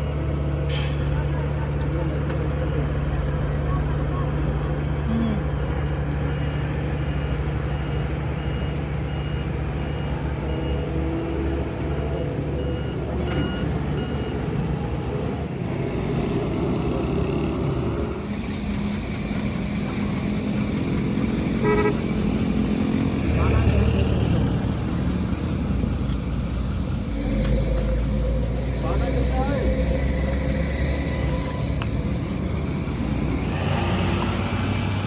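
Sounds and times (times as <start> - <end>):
truck engine running: 0.0 - 35.0
reversing alarm beeping: 5.6 - 14.4.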